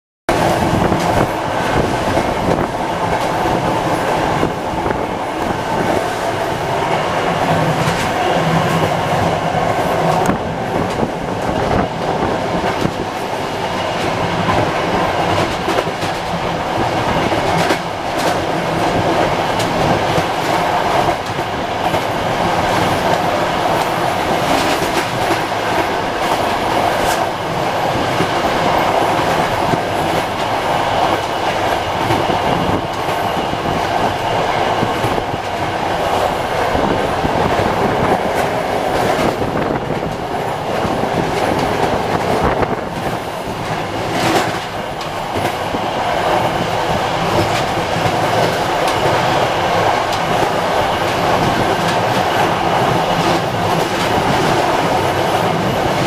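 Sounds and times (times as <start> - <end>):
train wheels on rail: 0.3 - 56.0
clicks from the track: 43.0 - 45.6.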